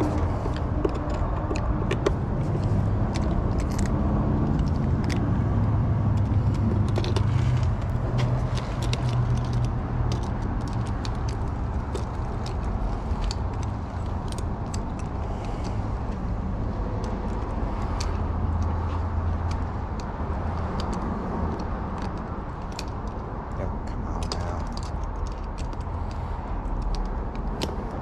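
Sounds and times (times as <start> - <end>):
lock hardware clicking: 0.0 - 5.3
low mechanical rumble: 0.0 - 28.0.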